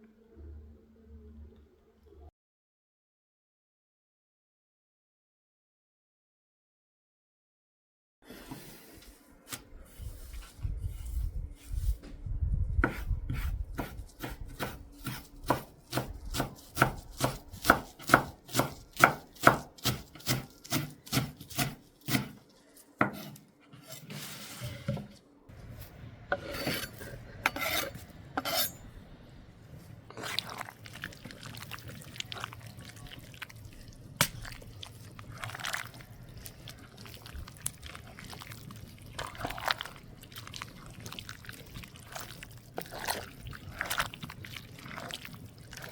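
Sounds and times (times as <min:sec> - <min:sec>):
knife chopping on cutting board: 0:12.8 - 0:22.4, 0:23.0 - 0:23.4
scrapes and knocks on board: 0:23.0 - 0:25.2.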